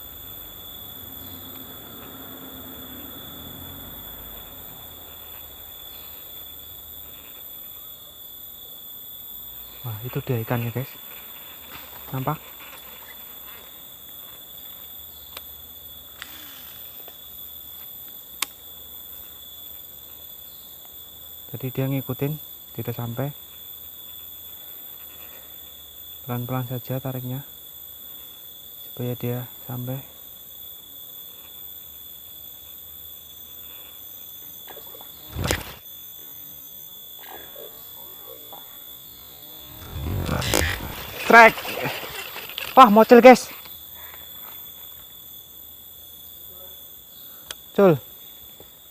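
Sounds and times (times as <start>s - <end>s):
insects chorus: 0.0s - 48.9s
loud short thump: 35.3s - 35.8s.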